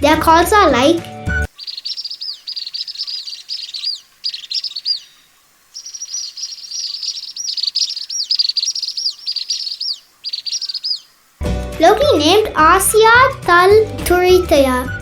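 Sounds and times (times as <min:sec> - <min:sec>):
sweeping bird notes: 0:01.4 - 0:11.4
swift twittering trills: 0:01.4 - 0:11.4.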